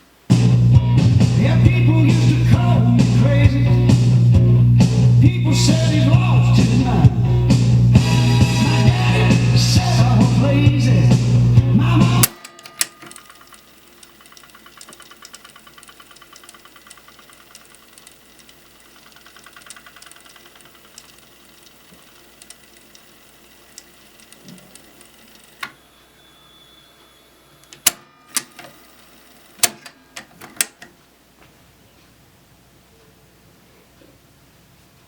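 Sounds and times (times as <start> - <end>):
cassette deck winding tape: 0.8 - 26.1, 27.5 - 30.9
cassette deck keys clicking: 12.2 - 25.8, 27.7 - 28.8, 29.6 - 31.0.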